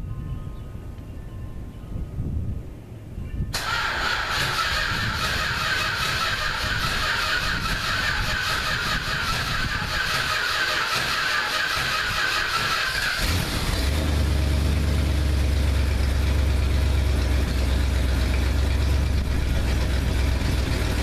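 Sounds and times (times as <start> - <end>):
car engine running: 4.4 - 21.0.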